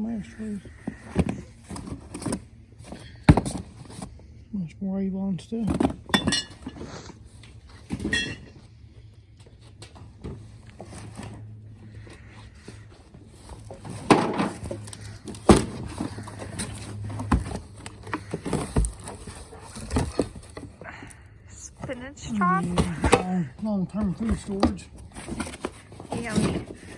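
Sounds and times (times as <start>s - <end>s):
objects knocking and clattering: 0.8s - 4.1s, 5.6s - 8.6s, 12.6s - 20.8s, 21.8s - 26.9s.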